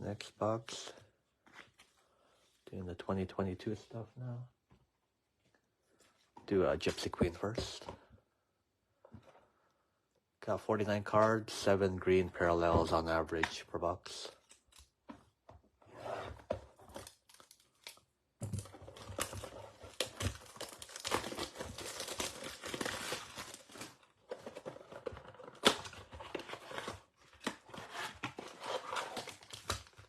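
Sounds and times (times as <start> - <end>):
plastic wrapping torn and crinkled: 16.9 - 18.1, 18.9 - 24.1, 29.1 - 30.0.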